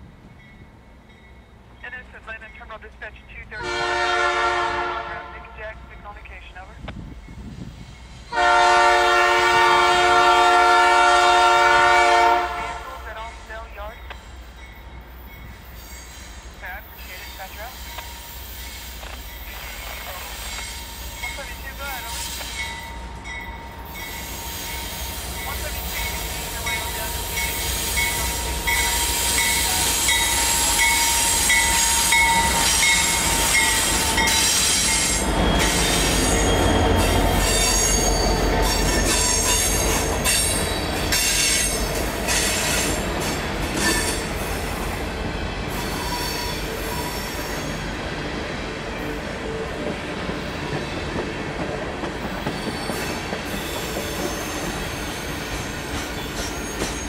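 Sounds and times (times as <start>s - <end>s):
diesel locomotive engine rumble: 0.0s - 57.0s
locomotive bell ringing: 0.2s - 1.8s, 16.8s - 43.0s
train wheels squealing: 14.2s - 26.8s, 27.4s - 43.0s, 45.7s - 47.8s, 52.4s - 57.0s.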